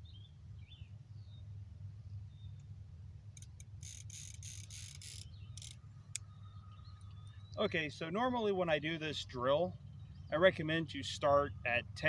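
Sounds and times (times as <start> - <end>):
bird chirps: 0.0 - 1.5, 5.2 - 8.6, 9.5 - 10.9
steady low rumble: 5.2 - 12.0.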